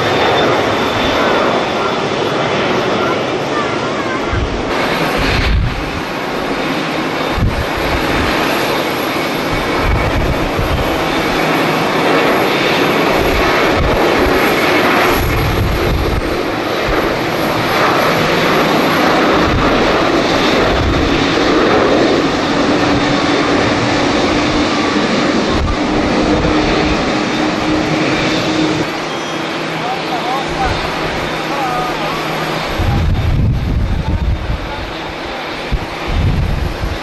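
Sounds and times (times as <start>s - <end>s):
wind buffeting microphone: 0.0s - 29.1s, 30.4s - 37.0s
jet engines running: 0.0s - 37.0s.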